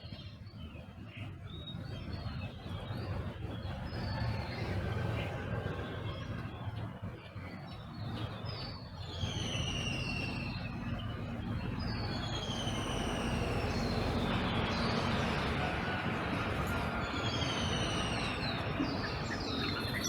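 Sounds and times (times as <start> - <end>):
songbirds dawn chorus: 0.0 - 20.0
bird whistling downward notes: 9.1 - 10.8, 11.9 - 14.2, 17.3 - 20.0.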